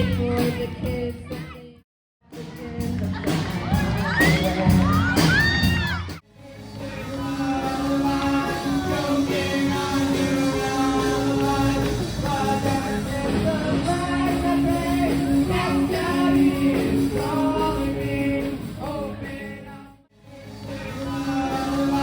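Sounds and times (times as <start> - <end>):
rock band playing: 2.2 - 19.6, 20.4 - 22.0
lead singer singing: 6.3 - 22.0.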